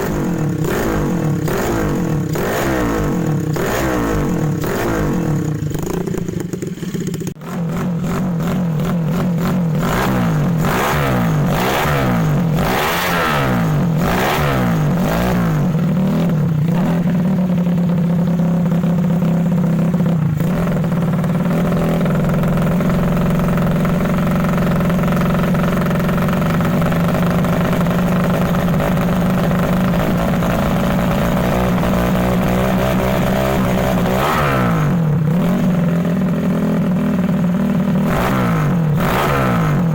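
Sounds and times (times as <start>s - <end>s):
scooter engine revving: 0.0s - 39.9s.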